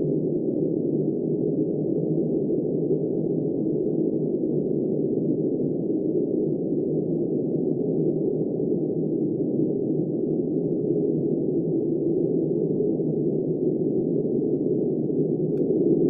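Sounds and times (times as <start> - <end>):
muffled wind rush: 11.0 - 16.0.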